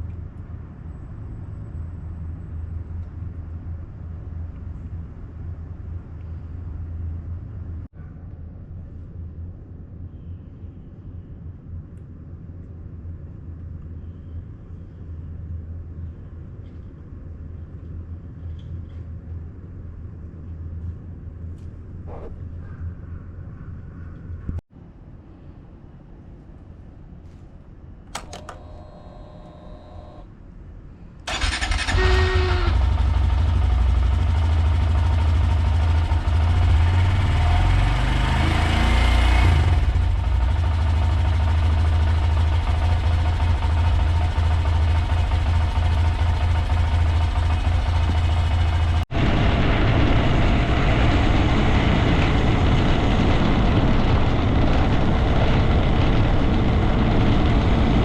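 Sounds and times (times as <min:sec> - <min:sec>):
motorcycle engine running: 0:28.2 - 0:30.2, 0:31.3 - 0:58.0.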